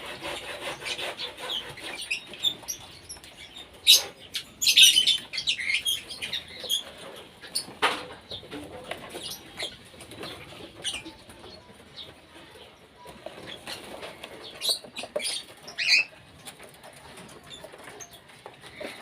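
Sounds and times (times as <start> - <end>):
cockatiels chirping: 0.1 - 7.7, 13.3 - 16.2.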